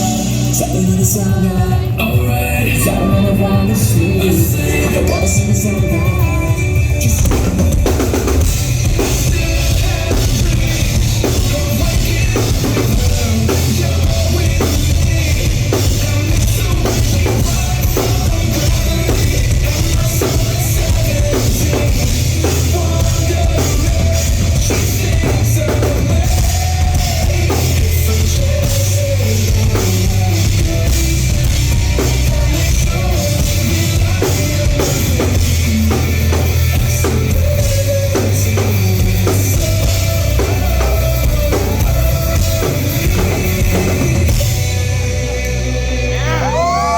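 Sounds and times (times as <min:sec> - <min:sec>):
drum kit beat: 0:00.0 - 0:45.6
heavy bass: 0:00.0 - 0:46.9
live rock band playing: 0:00.0 - 0:46.9.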